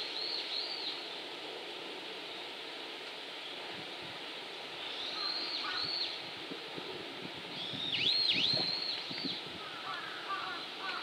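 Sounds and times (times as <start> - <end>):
bird calling high whistled notes: 0.0 - 1.0, 4.8 - 6.2, 7.5 - 9.4.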